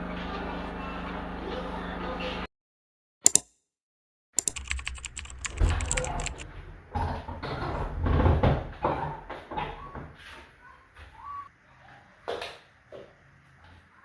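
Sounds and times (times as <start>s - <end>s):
sharp clicks and taps: 3.2s - 3.5s, 4.4s - 6.4s.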